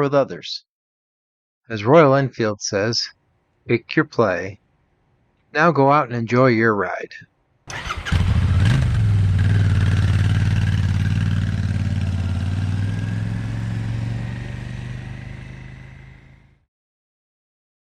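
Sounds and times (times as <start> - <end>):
motorcycle engine idling: 7.7 - 16.6.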